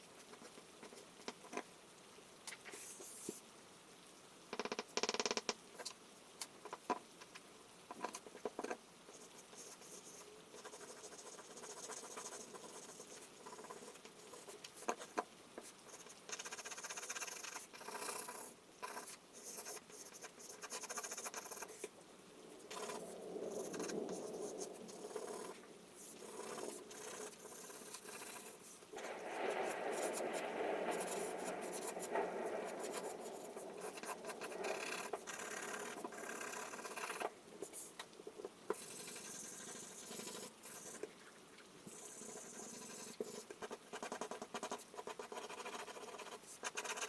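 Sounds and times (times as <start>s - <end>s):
charcoal scratching on paper: 8.0s - 21.9s, 23.6s - 28.8s, 38.7s - 41.1s, 41.9s - 47.0s.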